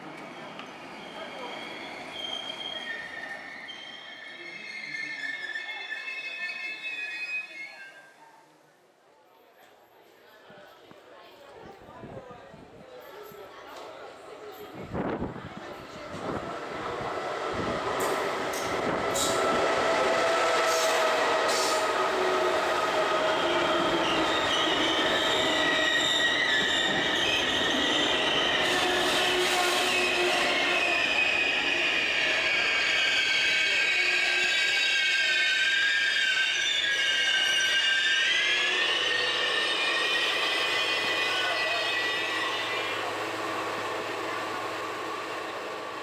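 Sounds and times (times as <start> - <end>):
train pulling into station: 0.0 - 8.6, 9.4 - 46.0
high squeal of train brakes: 0.2 - 8.3, 18.0 - 19.6, 20.6 - 22.1, 23.0 - 45.4.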